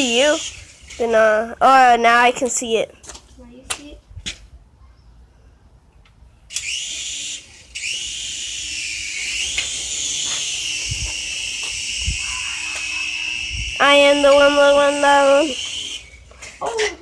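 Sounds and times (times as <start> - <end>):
toy helicopter motor whining: 0.0 - 1.4, 6.5 - 17.0.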